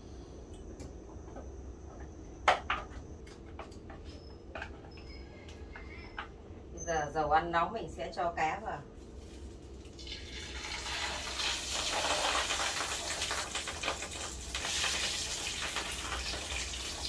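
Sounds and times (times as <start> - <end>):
fish sizzling in frying oil: 9.8 - 17.0.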